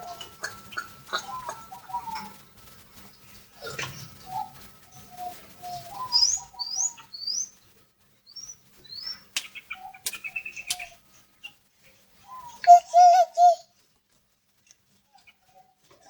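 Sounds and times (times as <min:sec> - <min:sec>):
bird whistling calls: 0:00.0 - 0:02.3, 0:05.2 - 0:07.5, 0:12.2 - 0:13.7.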